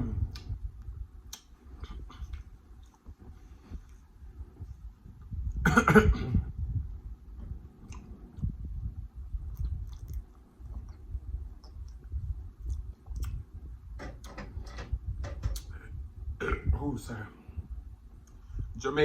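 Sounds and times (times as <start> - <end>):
mouth noises of eating: 0.0 - 5.6, 7.8 - 14.6, 15.5 - 16.7
cough-like vocal burst: 5.6 - 6.5, 16.4 - 16.8.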